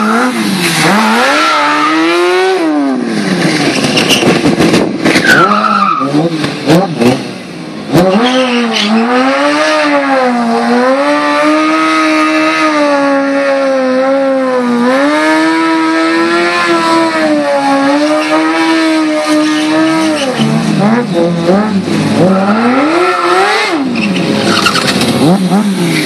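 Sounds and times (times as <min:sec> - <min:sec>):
motorbike engine revving high: 0:06.0 - 0:26.0.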